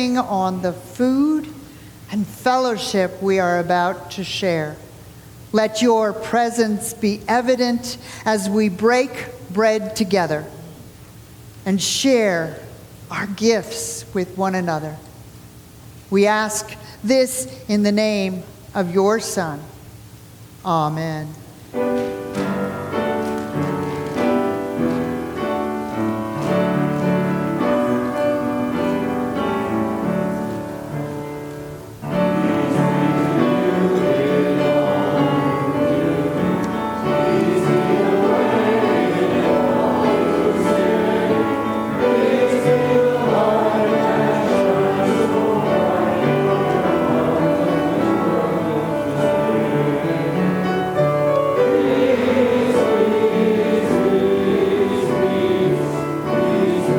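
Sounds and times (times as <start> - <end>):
piano playing: 21.6 - 56.9
group of voices singing: 32.1 - 51.0, 51.6 - 56.9.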